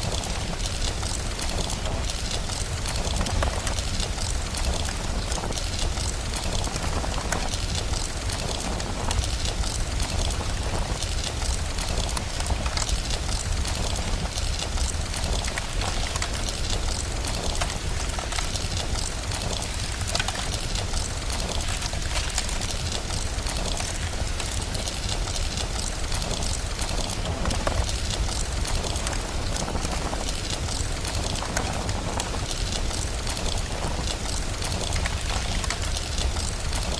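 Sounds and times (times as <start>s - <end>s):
fire crackling: 0.0s - 36.9s
steady rain: 0.0s - 36.9s.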